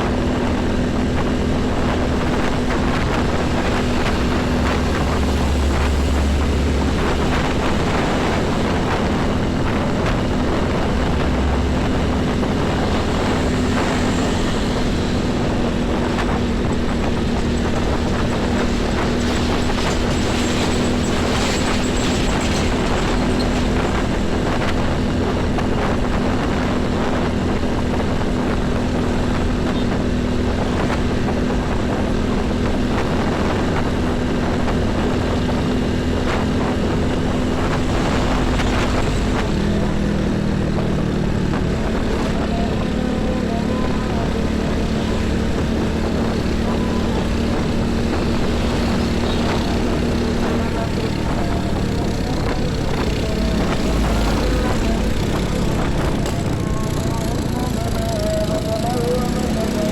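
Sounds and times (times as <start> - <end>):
heavy highway traffic: 0.0 - 59.9.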